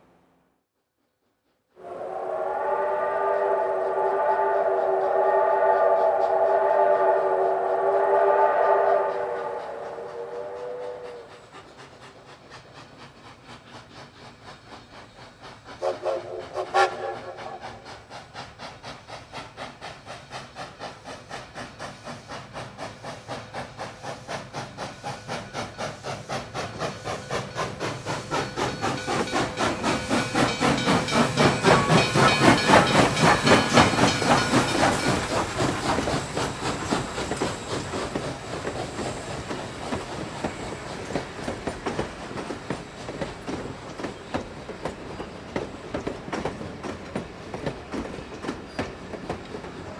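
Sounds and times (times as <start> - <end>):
steam locomotive exhaust chuffs: 1.0 - 49.9
steam locomotive whistle: 1.8 - 11.4, 15.8 - 18.0, 25.1 - 42.5.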